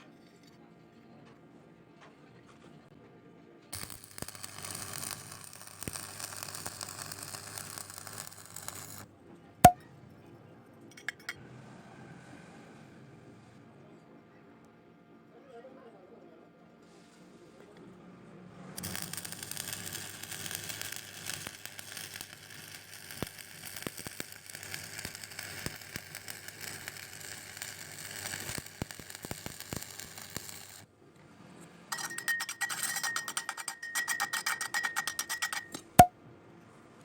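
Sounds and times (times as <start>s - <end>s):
welding arc crackling: 3.8s - 9.1s, 18.8s - 30.9s.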